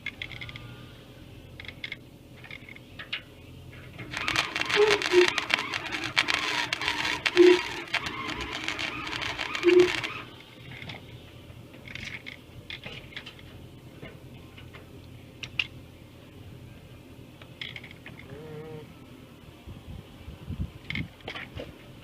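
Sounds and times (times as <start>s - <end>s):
welder arc crackling: 4.0s - 10.9s.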